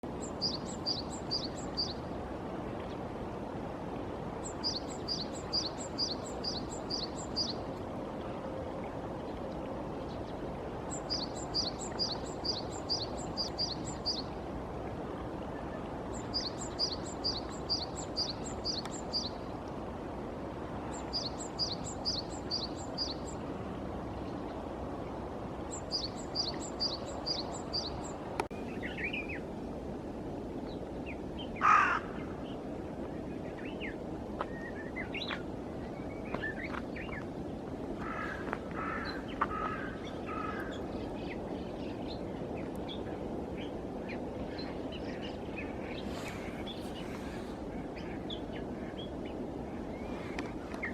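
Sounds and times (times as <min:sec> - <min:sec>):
steady background hiss: 0:00.0 - 0:50.9
small birds chirping: 0:00.2 - 0:02.0, 0:04.4 - 0:07.6, 0:10.9 - 0:14.3, 0:16.1 - 0:19.5, 0:20.9 - 0:23.4, 0:25.7 - 0:29.4, 0:38.9 - 0:50.9
crow cawing: 0:31.6 - 0:32.1, 0:38.0 - 0:40.7.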